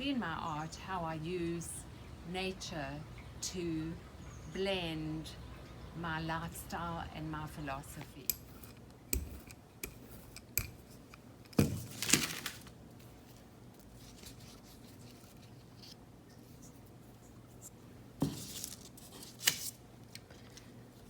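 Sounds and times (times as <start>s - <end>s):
paper rustling and crinkling: 11.6s - 21.0s.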